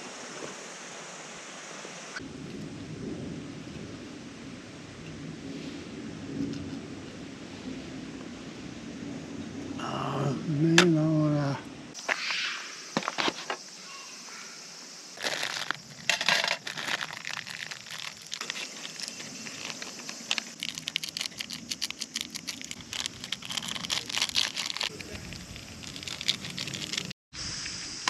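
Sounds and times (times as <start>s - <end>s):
steady high hiss: 0.0s - 2.4s, 8.4s - 28.0s
crinkling and rustling material: 15.2s - 27.2s.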